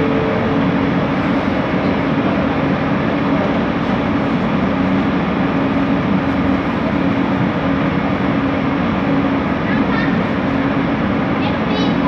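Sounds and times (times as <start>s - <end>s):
droning motor hum: 0.0s - 12.0s
train car rumbling: 0.0s - 12.0s.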